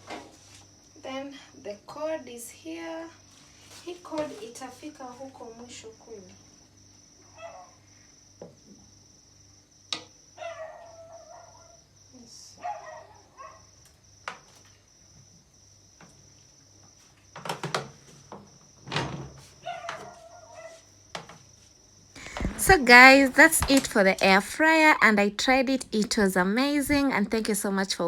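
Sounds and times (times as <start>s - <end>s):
animal calls: 10.4s - 11.8s.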